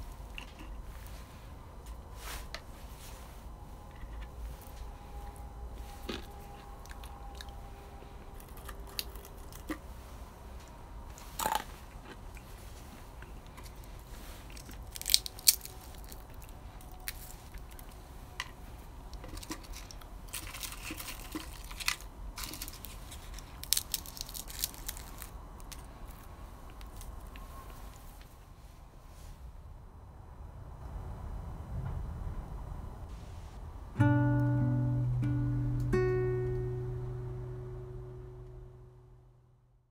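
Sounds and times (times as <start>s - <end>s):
crunching and chewing of beans: 0.0s - 2.4s, 3.8s - 28.2s.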